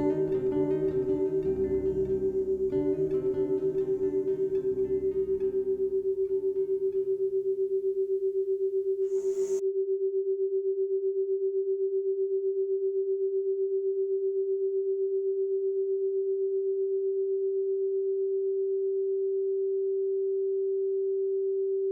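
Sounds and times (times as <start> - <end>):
steady pulsing pure tone: 0.0 - 14.4.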